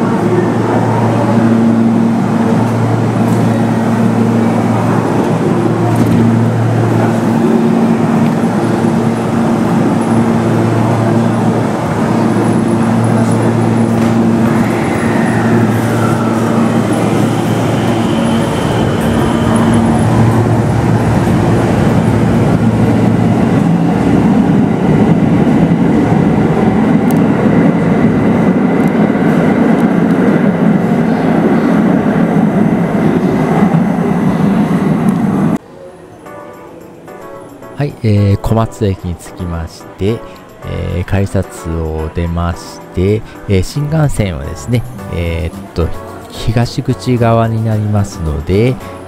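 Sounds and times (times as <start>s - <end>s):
electric train motor hum: 0.0s - 35.6s
falling whine: 0.0s - 35.6s
wheels rumbling on rail: 0.0s - 35.6s.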